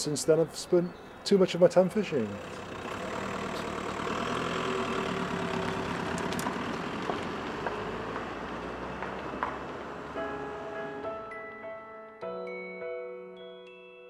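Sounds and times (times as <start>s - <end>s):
car engine running: 2.3s - 11.0s.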